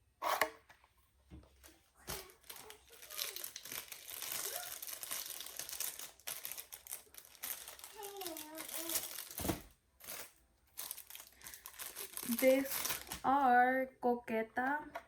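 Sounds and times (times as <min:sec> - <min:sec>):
plastic packaging crinkling: 0:01.6 - 0:13.6.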